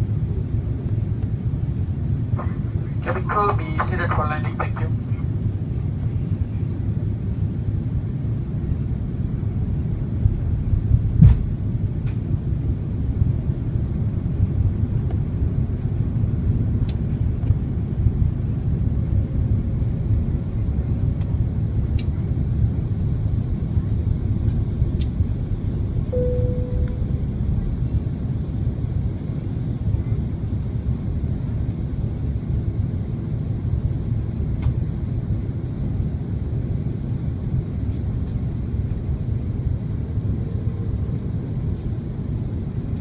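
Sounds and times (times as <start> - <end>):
airliner cabin engine rumble: 0.0 - 43.0
brief steady tone: 26.1 - 27.4.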